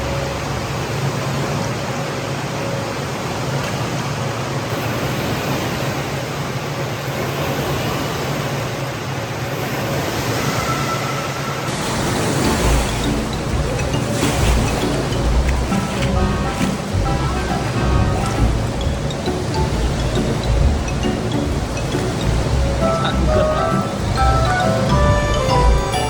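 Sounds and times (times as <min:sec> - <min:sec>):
rushing water: 0:00.0 - 0:26.0.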